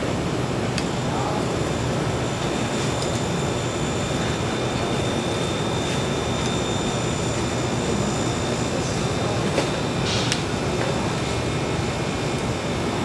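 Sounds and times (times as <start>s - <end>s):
faint high whine: 1.0s - 10.0s.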